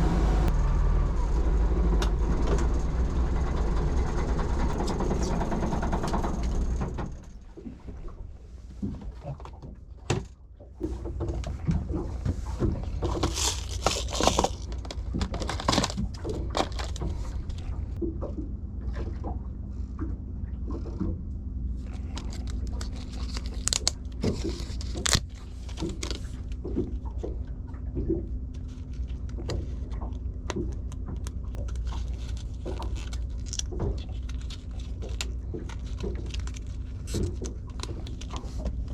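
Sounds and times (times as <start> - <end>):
boat engine humming: 0.0 - 38.9
sharp clicks and knocks: 2.0 - 7.4.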